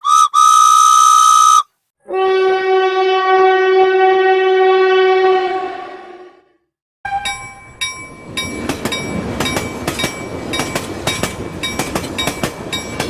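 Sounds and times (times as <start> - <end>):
train horn blasts: 0.0 - 6.4, 7.1 - 7.5.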